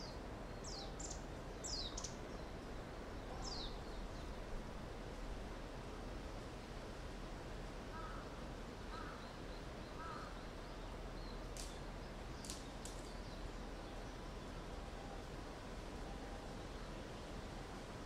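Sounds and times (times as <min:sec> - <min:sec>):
steady faint hiss: 0:00.0 - 0:18.0
faint bird calls: 0:07.9 - 0:11.4
sharp clicks: 0:11.6 - 0:11.8.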